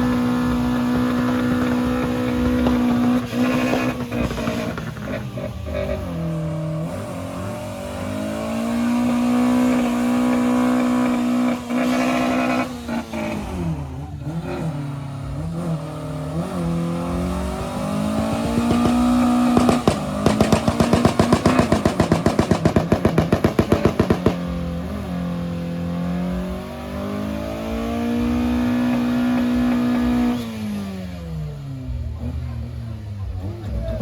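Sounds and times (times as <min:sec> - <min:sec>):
car engine revving: 0:00.0 - 0:34.0
rapid sharp bangs: 0:17.6 - 0:24.8.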